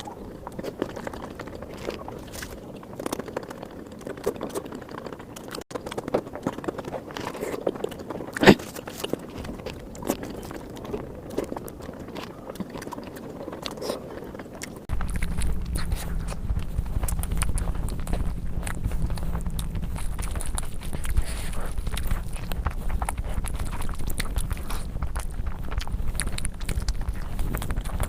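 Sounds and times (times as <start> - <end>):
close chewing and biting: 0.0 - 28.0
wet mouth clicks: 7.2 - 28.0
steady low hum: 8.1 - 28.0.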